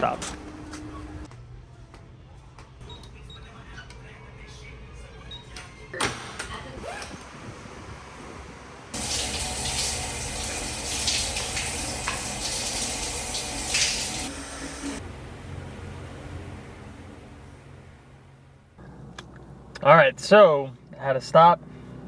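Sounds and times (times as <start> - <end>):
shower water spraying: 9.0 - 15.0.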